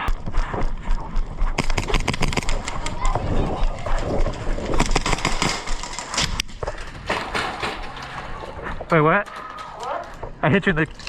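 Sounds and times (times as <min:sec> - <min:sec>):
movement noise: 0:00.0 - 0:11.0
airsoft guns firing: 0:01.6 - 0:07.9
voices: 0:02.4 - 0:11.0.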